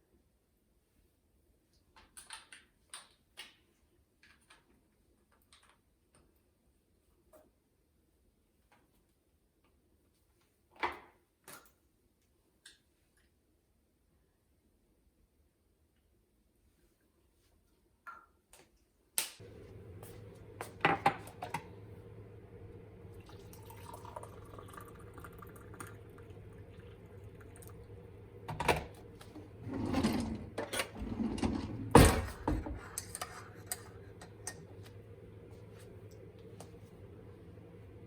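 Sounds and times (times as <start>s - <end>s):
steady low hum: 19.4s - 38.0s
liquid splashing: 22.6s - 28.2s.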